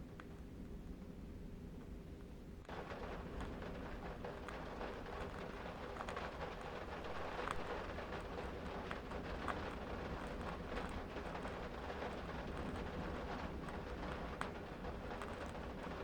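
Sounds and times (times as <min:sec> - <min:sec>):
soft wind rumble: 0:00.0 - 0:16.0
candle wick crackling: 0:02.7 - 0:16.0.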